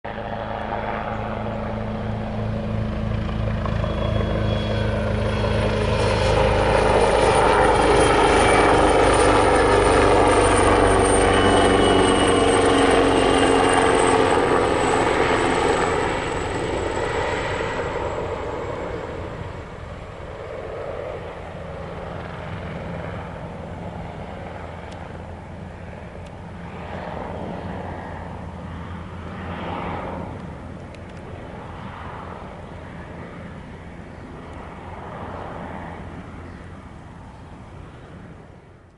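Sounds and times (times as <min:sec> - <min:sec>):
helicopter rotor thrum: 0:00.1 - 0:21.2
helicopter turbine whine: 0:00.1 - 0:38.9.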